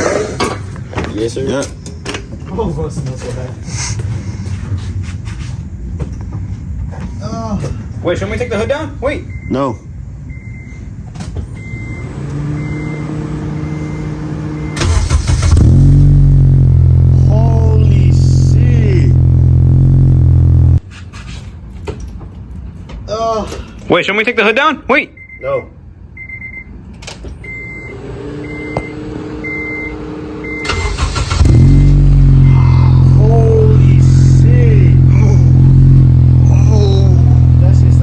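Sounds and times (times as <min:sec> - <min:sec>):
car engine cranking and idling: 0:10.3 - 0:20.8, 0:26.9 - 0:38.0.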